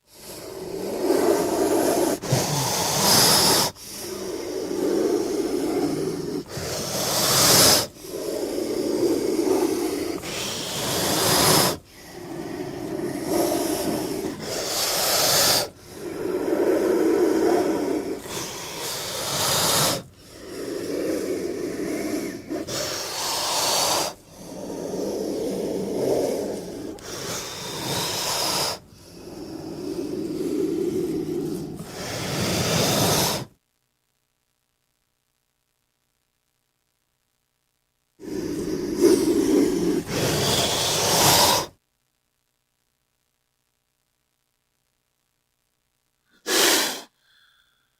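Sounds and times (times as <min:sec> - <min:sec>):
snake hissing: 0:00.0 - 0:33.5, 0:38.2 - 0:41.8, 0:46.4 - 0:47.6.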